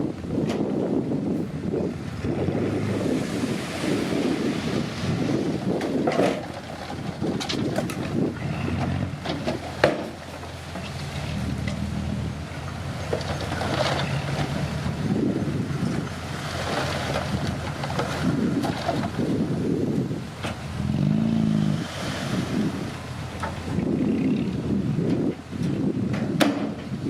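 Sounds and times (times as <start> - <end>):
wind buffeting microphone: 0.0 - 27.0
bulldozer diesel engine running: 5.1 - 21.8.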